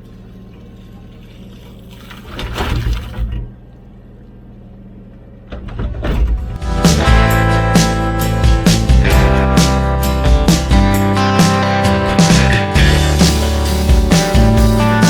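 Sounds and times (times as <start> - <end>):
wet scraping and splashing: 0.4 - 3.5
excavator diesel engine running: 3.4 - 15.0.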